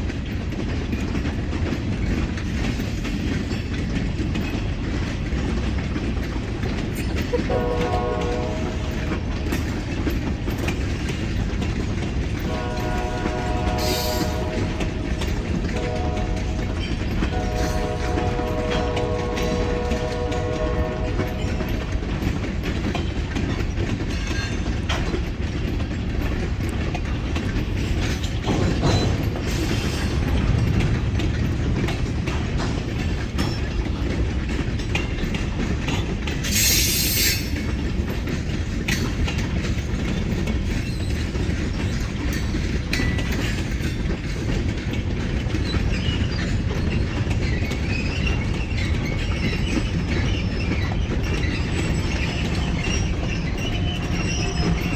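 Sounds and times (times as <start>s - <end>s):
train wheels clattering on rails: 0.0s - 54.9s
locomotive horn: 7.3s - 9.2s, 12.4s - 22.4s, 52.2s - 54.9s.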